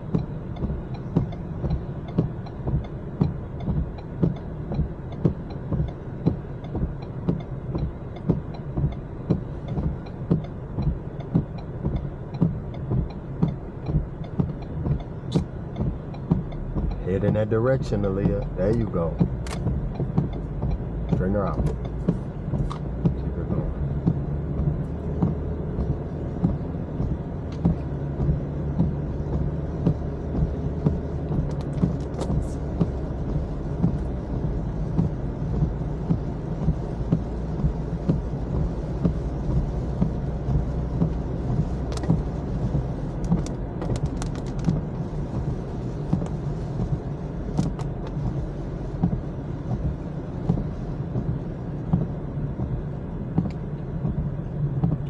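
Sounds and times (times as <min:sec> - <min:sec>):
engine and tyres rumbling: 0:00.0 - 0:55.0
regular beat: 0:00.0 - 0:55.0
faint ticks: 0:00.1 - 0:34.3, 0:53.3 - 0:54.2.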